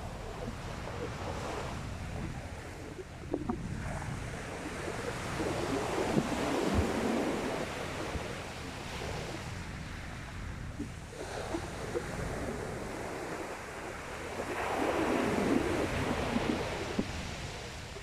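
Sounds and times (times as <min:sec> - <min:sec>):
wind rumble on microphone: 0:00.0 - 0:18.0
waves washing onto shingle beach: 0:11.1 - 0:18.0.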